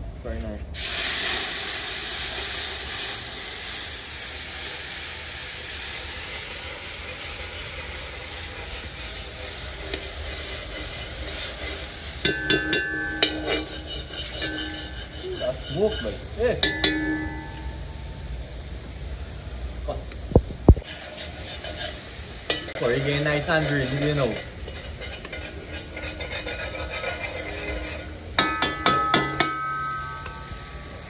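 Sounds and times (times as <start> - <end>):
curry sizzling in hot oil: 0.8 - 31.0
metal ladle clanking against pot: 12.2 - 15.2, 16.6 - 17.9, 22.5 - 22.8, 28.4 - 30.8.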